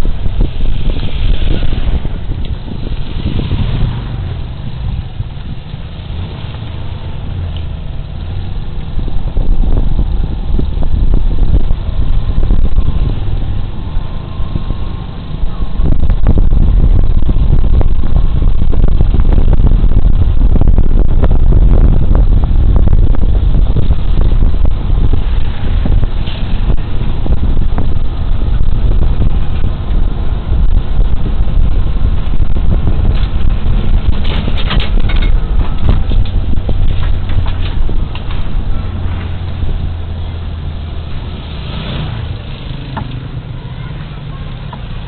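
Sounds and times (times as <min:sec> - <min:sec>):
road noise: 0:00.0 - 0:45.0
wind buffeting microphone: 0:00.0 - 0:45.0.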